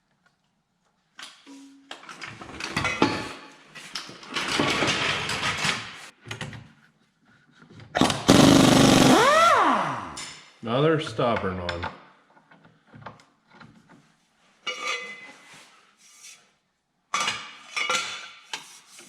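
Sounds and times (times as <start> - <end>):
impact wrench motor whine: 8.0 - 10.2
impact wrench hammering bolt: 8.0 - 10.4.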